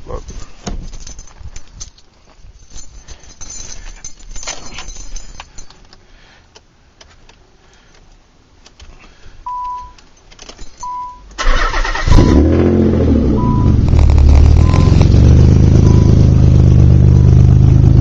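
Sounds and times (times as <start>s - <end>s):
keys clicking and rattling: 0.0s - 6.0s, 9.6s - 11.2s
short beeps: 9.5s - 10.0s, 10.8s - 11.3s, 13.3s - 13.9s, 14.5s - 16.4s
car engine starting and revving: 11.4s - 18.0s.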